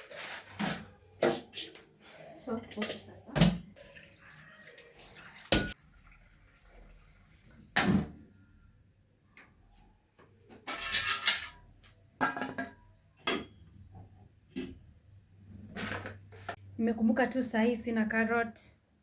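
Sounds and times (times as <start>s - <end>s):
cooking pot knocks and clanks: 5.5s - 5.8s, 12.2s - 13.6s.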